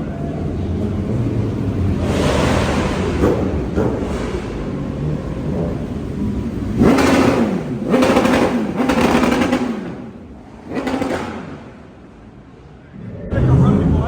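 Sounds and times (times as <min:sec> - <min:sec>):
car engine revving: 0:00.0 - 0:14.0
engines running steadily: 0:00.0 - 0:14.0.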